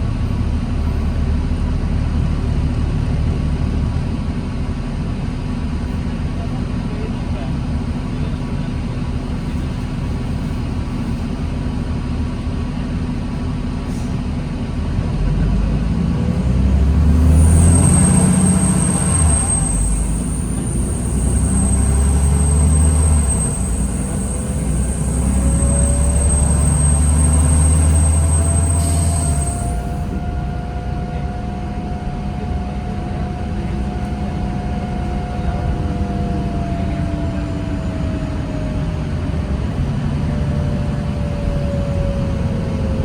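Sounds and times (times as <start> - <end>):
diesel bus engine rumble: 0.0 - 43.0
faint rising whine: 16.6 - 43.0.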